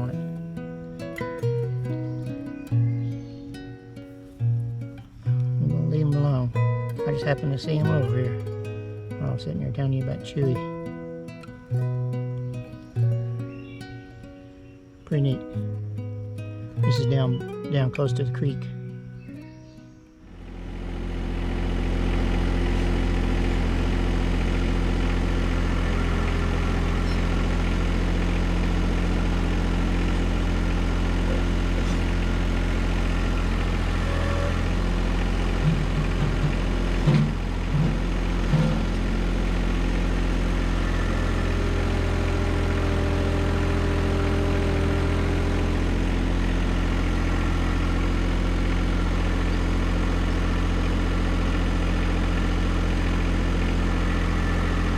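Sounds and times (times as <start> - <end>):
tractor diesel engine idling: 0.0 - 54.9
brief low bumps: 35.6 - 39.1.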